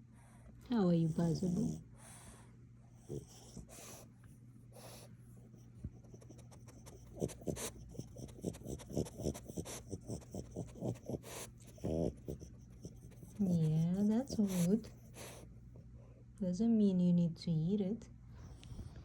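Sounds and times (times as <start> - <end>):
breathy puffs: 6.2 - 15.5.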